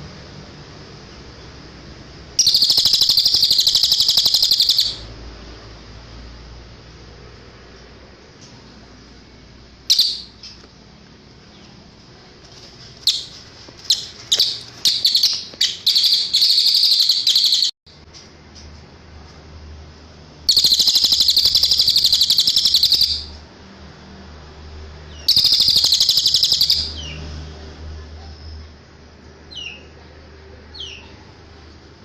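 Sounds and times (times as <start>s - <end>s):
bird chirping and trilling: 2.4s - 5.1s, 9.9s - 10.6s, 13.0s - 17.8s, 20.5s - 23.4s, 25.1s - 27.2s.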